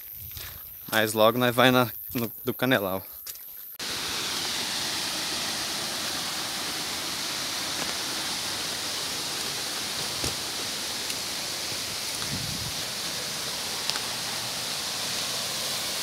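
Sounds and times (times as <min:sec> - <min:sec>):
steady rushing hiss: 0:03.8 - 0:16.0.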